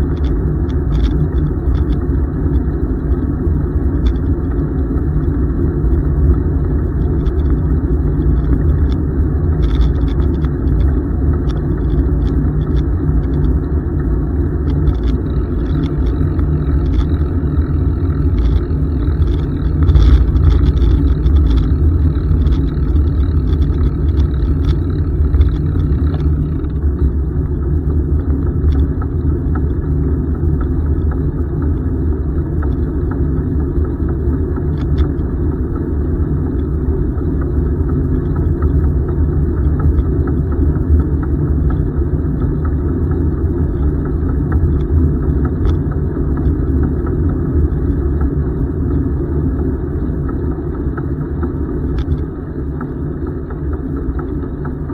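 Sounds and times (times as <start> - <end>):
bicycle tyres on pavement: 0.0 - 27.3
wind on microphone: 0.0 - 54.9.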